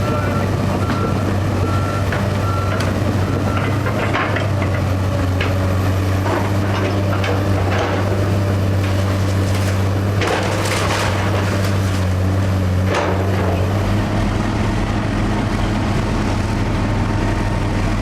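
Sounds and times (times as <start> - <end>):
demolition machine engine running: 0.0 - 18.0
timber cracking and snapping: 8.8 - 12.2.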